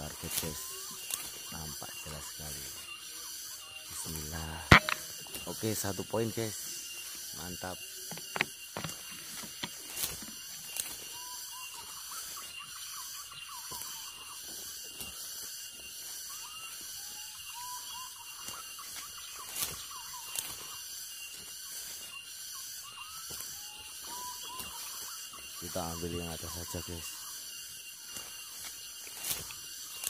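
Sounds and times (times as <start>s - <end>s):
steady high hiss: 0.0s - 30.0s
whistled bird calls: 0.0s - 30.0s
sharp clicks: 4.6s - 5.4s.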